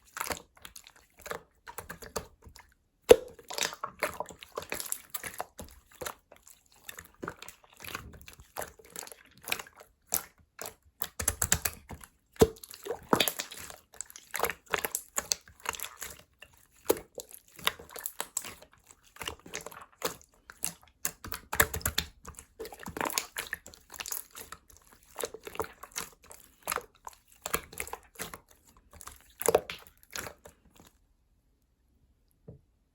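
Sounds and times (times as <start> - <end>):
slime squishing and popping: 3.0 - 6.2, 7.0 - 16.2, 16.8 - 30.5.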